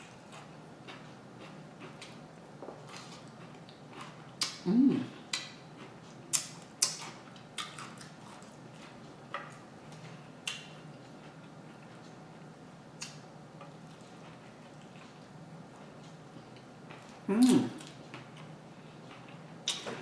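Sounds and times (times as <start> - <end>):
person chewing sandwich: 0.0 - 9.6.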